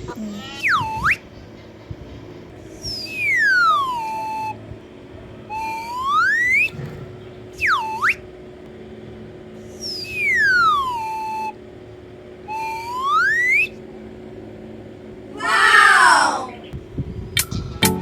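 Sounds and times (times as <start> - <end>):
sliding whistle sound effect: 12.5 - 13.7.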